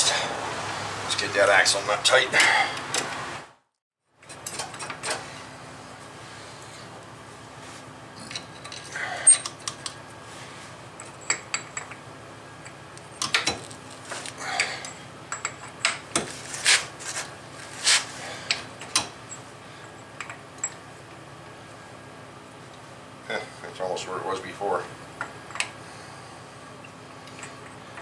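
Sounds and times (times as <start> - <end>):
hand tools clinking and scraping: 8.2 - 9.9.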